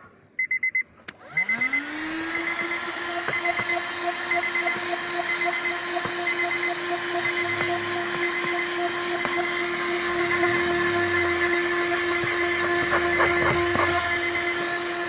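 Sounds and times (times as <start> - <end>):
vacuum cleaner motor whine: 1.1 - 15.0
high electronic beeps: 3.4 - 8.7.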